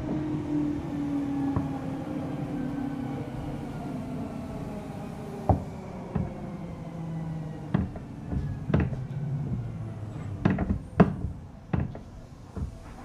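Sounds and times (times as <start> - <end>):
train running rumble: 0.0 - 13.0
wheels knocking over rail joints: 1.5 - 1.9, 5.5 - 6.6, 7.6 - 13.0.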